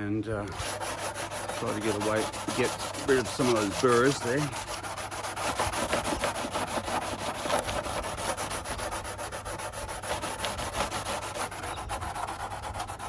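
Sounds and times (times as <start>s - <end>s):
sandpaper rubbing on plastic edge: 0.4s - 13.0s.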